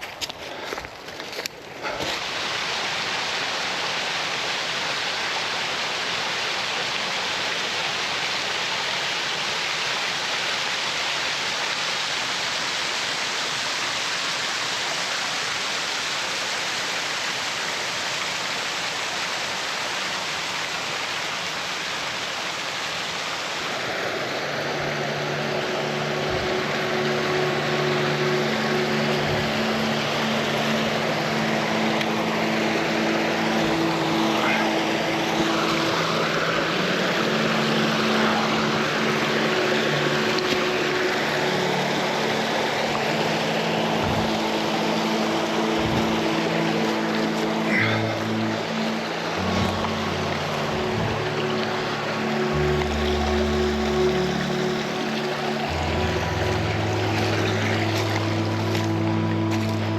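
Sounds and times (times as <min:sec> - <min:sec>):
rushing creek and waterfalls: 0:00.0 - 0:59.9
engine drone: 0:23.7 - 0:59.9.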